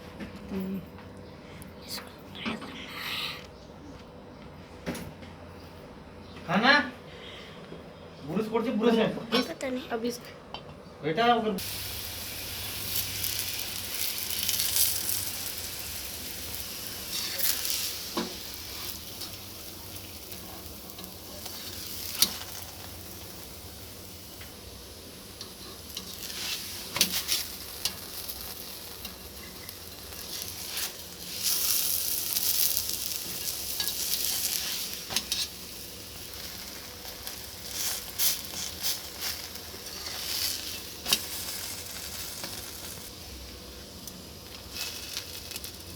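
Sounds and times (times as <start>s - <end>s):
flatbread sizzling in a pan: 11.6s - 45.9s.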